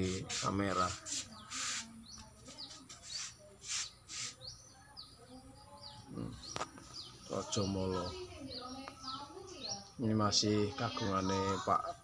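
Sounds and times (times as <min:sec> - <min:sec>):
small birds chirping: 0:00.0 - 0:12.0
brief hissing noises: 0:00.3 - 0:02.0, 0:03.0 - 0:04.5.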